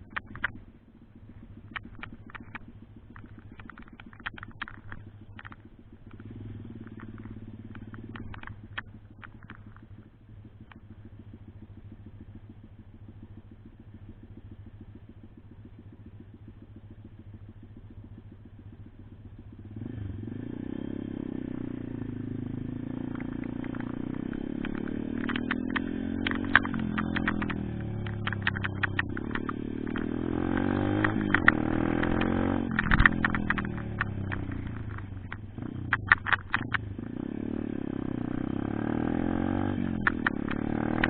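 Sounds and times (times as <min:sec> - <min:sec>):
sharp clicks and rattles: 0:00.0 - 0:19.9, 0:21.0 - 0:41.0
pit bike engine revving: 0:19.6 - 0:41.0.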